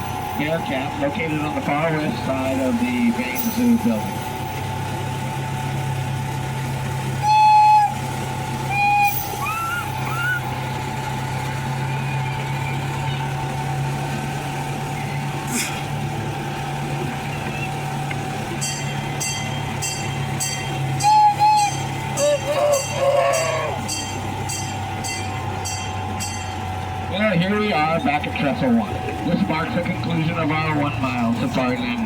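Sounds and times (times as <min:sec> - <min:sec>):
ride train running: 0:00.0 - 0:32.0
train horn toots: 0:07.2 - 0:09.4, 0:20.4 - 0:26.8.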